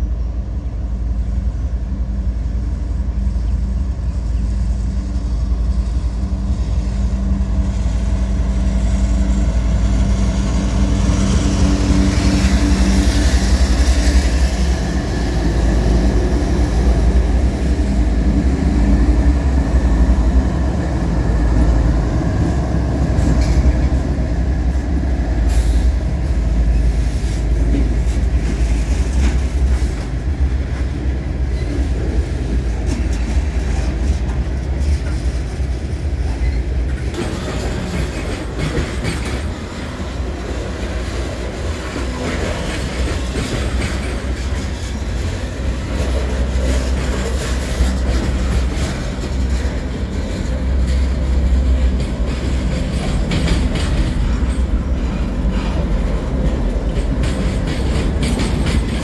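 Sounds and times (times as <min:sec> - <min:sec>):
diesel locomotive rumble: 0:00.0 - 0:59.0
freight cars rolling on rails: 0:03.0 - 0:59.0.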